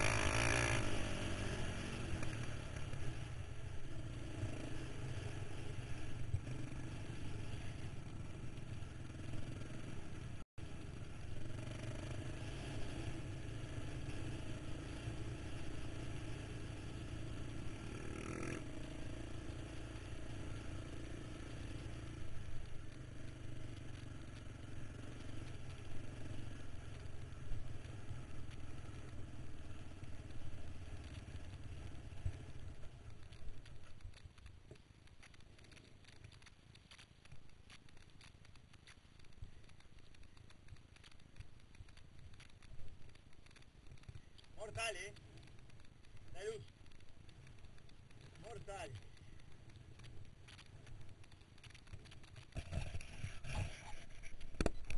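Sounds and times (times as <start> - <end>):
quad engine running: 0.0 - 33.7
continuous rush of noise: 0.0 - 54.9.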